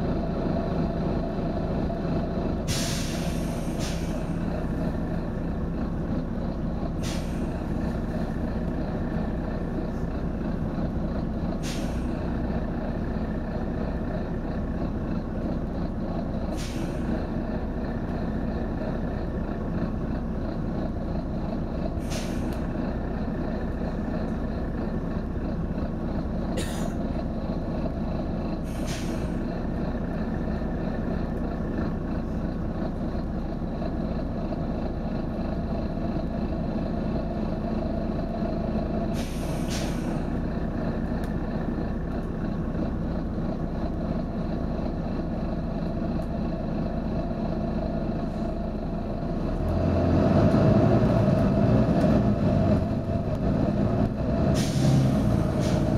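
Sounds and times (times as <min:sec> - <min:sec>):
bus diesel engine running: 0:00.0 - 0:55.9
compressed air hiss: 0:02.7 - 0:04.4, 0:07.0 - 0:07.5, 0:11.6 - 0:12.1, 0:16.5 - 0:17.0, 0:22.0 - 0:22.5, 0:28.6 - 0:29.4, 0:39.1 - 0:40.3, 0:54.6 - 0:55.9.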